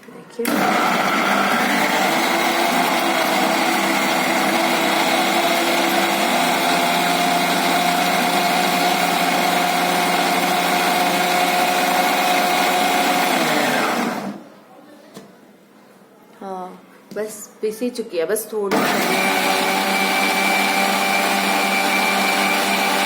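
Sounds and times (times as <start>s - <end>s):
mixer grinder whining: 0.4s - 14.5s, 18.7s - 23.0s.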